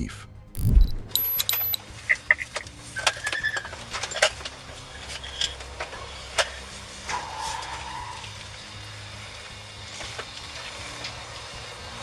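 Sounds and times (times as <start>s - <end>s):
short beeping tones: 0.6s - 1.8s.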